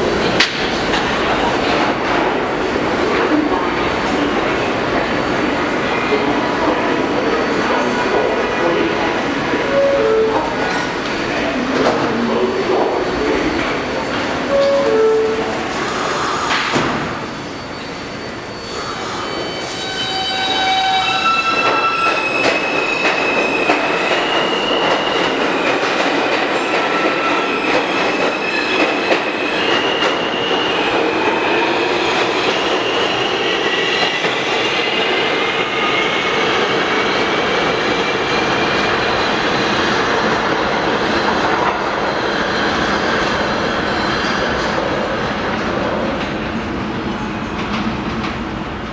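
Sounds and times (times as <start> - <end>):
subway train rumbling on rails: 0.0 - 48.9
high-pitched wheel squeals: 17.4 - 23.7.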